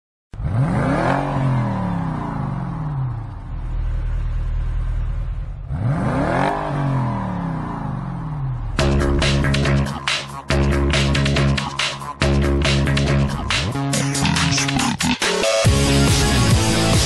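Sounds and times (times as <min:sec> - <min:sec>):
car engine revving: 0:00.4 - 0:17.0
steady low rumble: 0:02.9 - 0:05.8.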